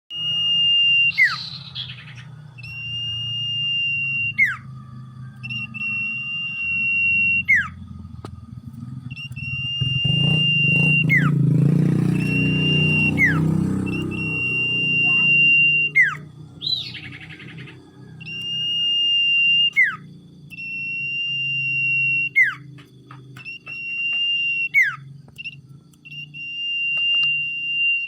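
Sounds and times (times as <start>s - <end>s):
bird whistling: 0.1s - 8.4s, 9.0s - 28.0s
low rumble: 4.7s - 11.3s.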